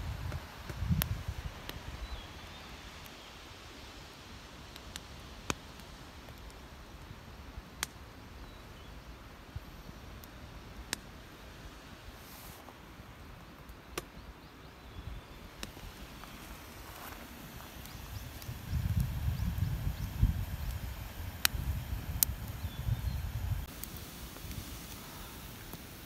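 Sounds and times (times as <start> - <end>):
campfire hissing: 0.0 - 26.0
fire popping and cracking: 0.1 - 1.8, 7.8 - 8.0, 15.5 - 26.0.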